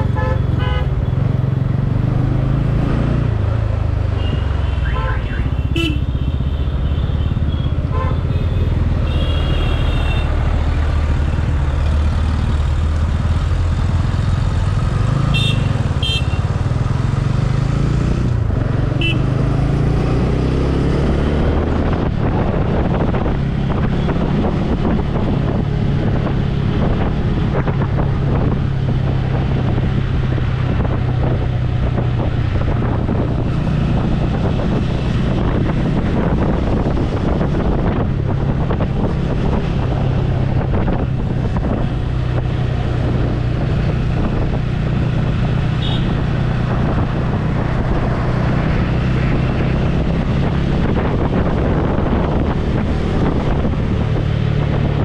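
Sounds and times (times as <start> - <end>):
wind over microphone: 15.8 - 55.0.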